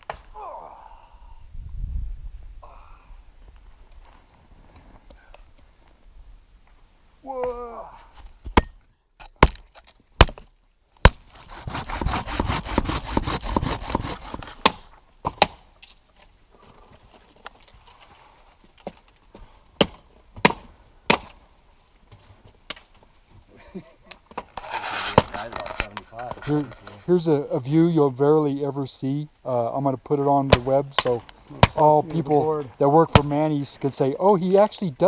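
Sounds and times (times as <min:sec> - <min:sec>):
dry wood cracking and snapping: 0:09.2 - 0:16.3, 0:16.9 - 0:21.4, 0:22.5 - 0:23.1.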